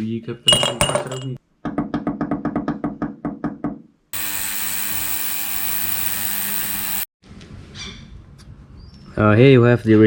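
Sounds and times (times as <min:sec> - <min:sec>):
ultrasonic cleaner hissing: 0:04.2 - 0:07.1.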